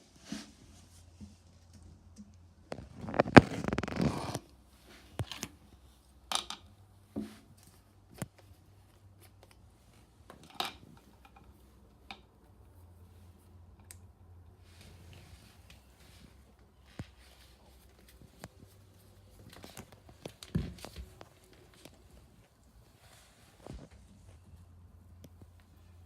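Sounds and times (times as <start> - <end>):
rattling crinkling of supplies: 0.0 - 5.7, 14.7 - 26.0.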